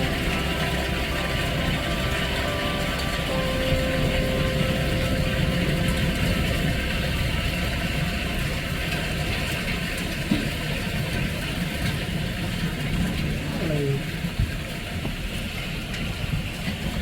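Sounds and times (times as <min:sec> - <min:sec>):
car engine running: 0:00.0 - 0:10.8
road rumble: 0:00.0 - 0:17.0.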